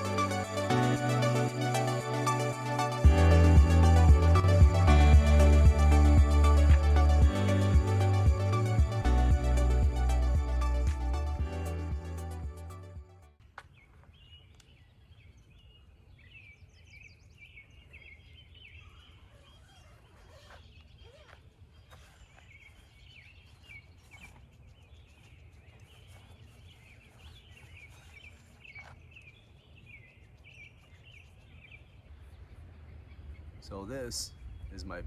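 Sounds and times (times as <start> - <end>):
small birds chirping: 14.2 - 35.0
low wind rumble: 31.6 - 35.0.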